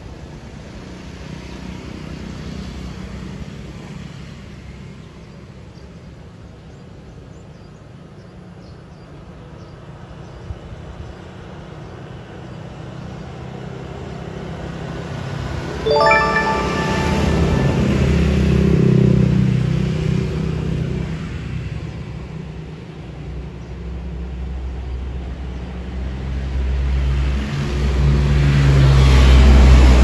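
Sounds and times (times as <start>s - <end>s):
faint high chirps: 15.9s - 18.4s.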